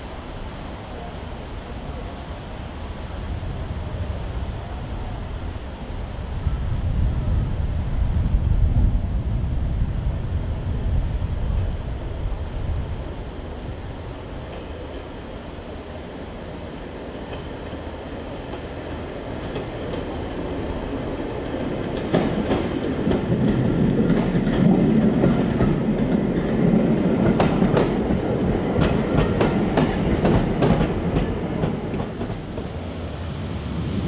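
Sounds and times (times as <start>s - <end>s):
diesel train rumbling past: 0.0s - 34.0s
wheels clicking over rail joints: 17.2s - 32.8s.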